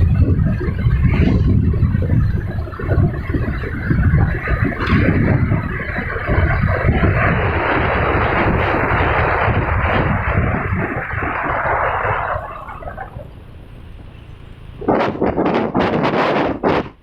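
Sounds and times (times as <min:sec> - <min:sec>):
low rumble: 0:00.0 - 0:17.0
wind rushing over microphone: 0:00.0 - 0:17.0.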